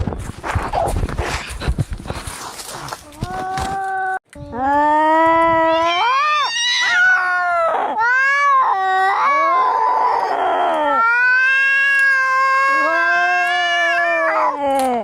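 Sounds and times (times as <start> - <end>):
cats yowling in a fight: 5.6 - 14.6.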